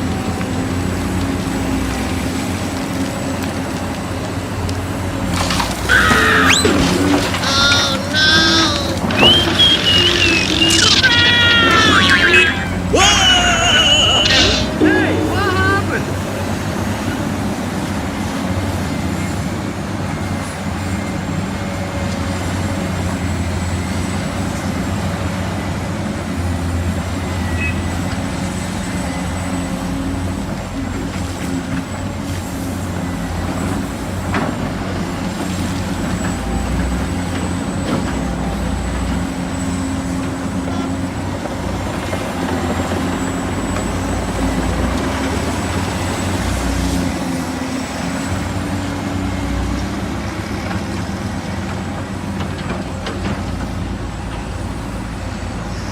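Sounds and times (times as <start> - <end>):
diesel engine drone: 0.0 - 55.9
high whine: 8.1 - 16.6.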